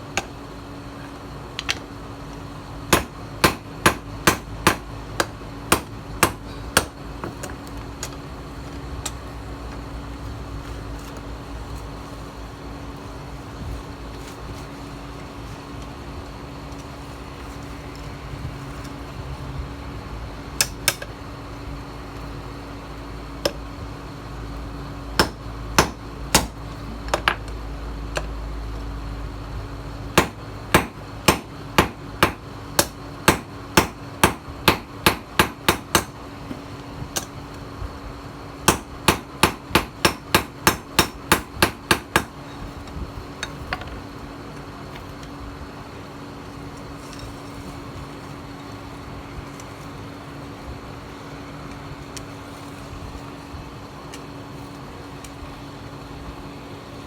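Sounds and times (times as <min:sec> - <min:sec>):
hammer striking steel on anvil: 0:02.9 - 0:07.0, 0:20.6 - 0:21.1, 0:25.2 - 0:26.6, 0:30.2 - 0:36.2, 0:38.7 - 0:42.3.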